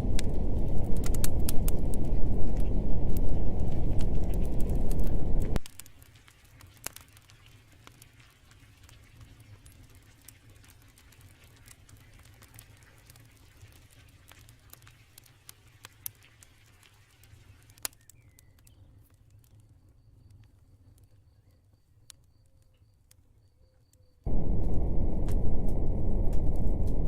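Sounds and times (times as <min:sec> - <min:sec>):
low hum: 0:00.0 - 0:05.6, 0:24.3 - 0:27.0
campfire crackling: 0:00.0 - 0:21.2, 0:24.3 - 0:27.0.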